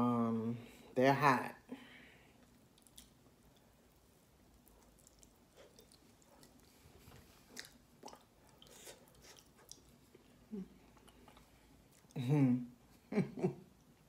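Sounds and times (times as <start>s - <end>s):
soft crunchy chewing: 2.3s - 12.2s.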